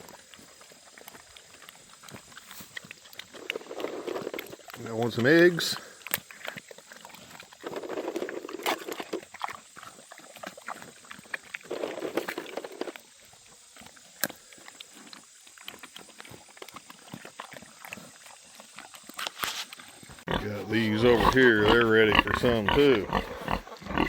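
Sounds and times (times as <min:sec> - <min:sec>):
pigs grunting: 0:00.0 - 0:13.0, 0:20.1 - 0:24.0
pigs chewing: 0:00.0 - 0:24.0.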